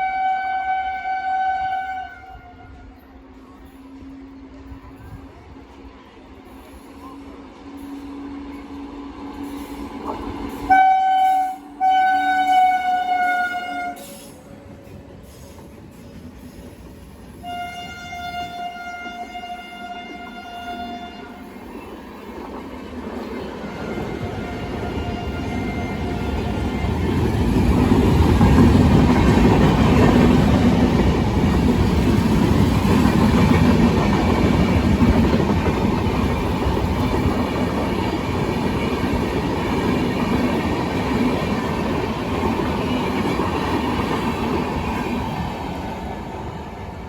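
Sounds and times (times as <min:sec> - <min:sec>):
express train passing: 0:00.0 - 0:47.0
train wheels clacking on rail joints: 0:21.6 - 0:45.7.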